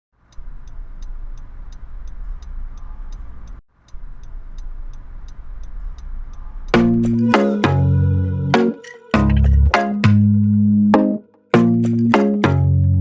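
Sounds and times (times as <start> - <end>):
light even ticking: 0.2 - 9.8
moving vehicle rumble: 0.2 - 10.9.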